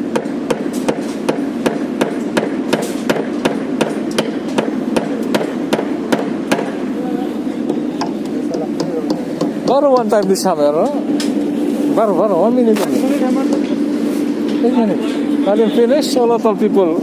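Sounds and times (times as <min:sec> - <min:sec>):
hammer strikes: 0:00.0 - 0:06.9, 0:07.6 - 0:11.4, 0:12.8 - 0:13.8
steady background noise: 0:00.0 - 0:17.0.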